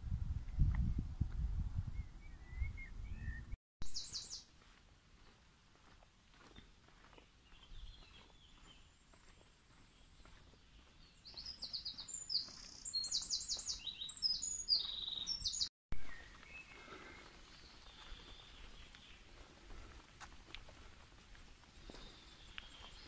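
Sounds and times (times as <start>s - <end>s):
songbird trilling: 2.4s - 4.4s, 11.2s - 15.7s.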